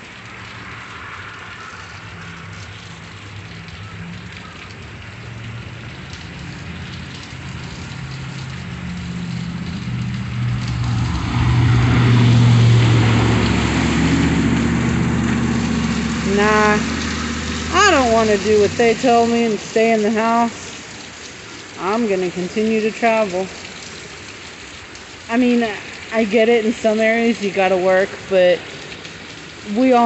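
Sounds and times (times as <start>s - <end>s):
heavy rain falling: 0.0s - 30.0s
tyres hissing through floodwater: 0.0s - 30.0s
car engine approaching: 7.9s - 19.8s.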